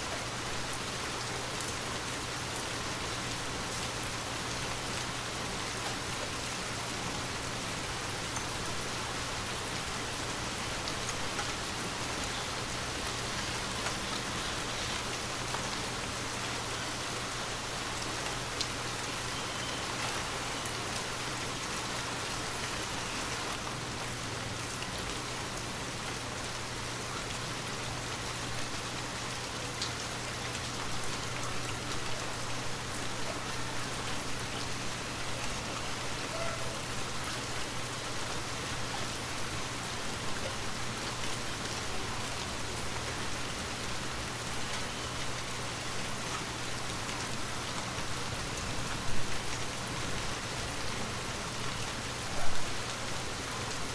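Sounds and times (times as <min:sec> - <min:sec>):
steady rain hiss: 0:00.0 - 0:53.9.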